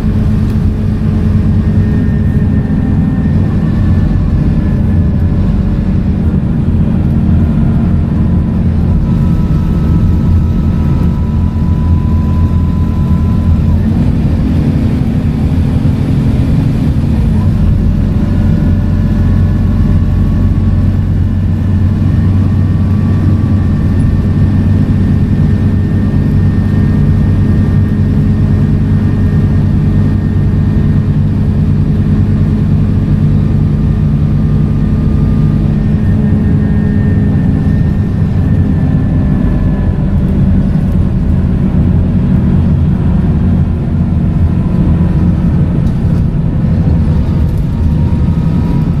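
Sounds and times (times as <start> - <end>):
faint high whines: 0.0 - 31.3
bus diesel engine drone: 0.0 - 49.0.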